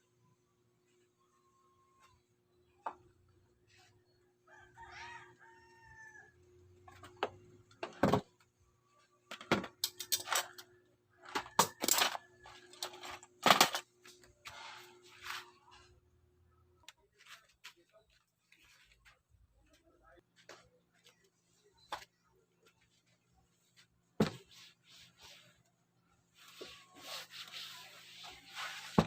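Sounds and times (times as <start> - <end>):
rooster crowing: 4.4 - 6.4.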